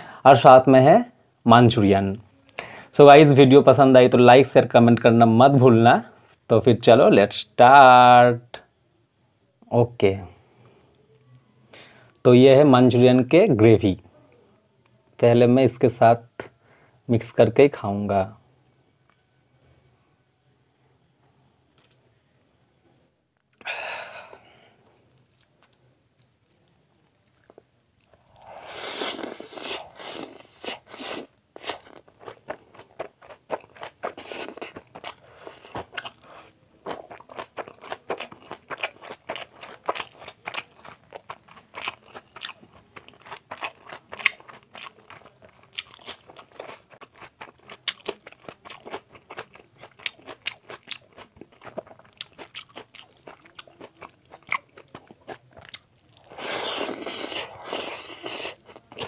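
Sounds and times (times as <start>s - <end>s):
chewing and crunching food: 24.8s - 59.0s.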